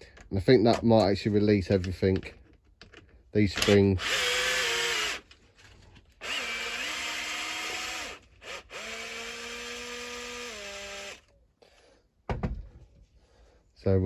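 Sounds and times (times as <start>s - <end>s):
electric drill whining: 3.6s - 5.3s, 6.2s - 11.3s.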